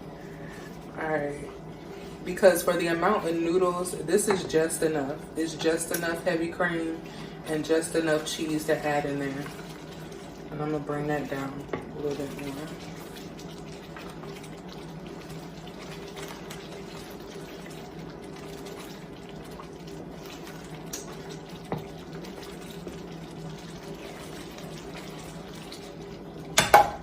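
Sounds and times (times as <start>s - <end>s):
sauce bubbling in a pan: 0.0s - 27.0s.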